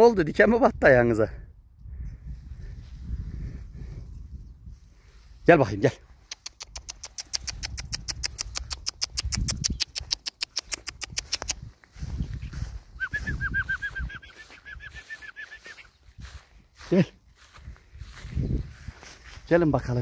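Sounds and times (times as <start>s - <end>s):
bird ticking call: 6.2s - 11.6s.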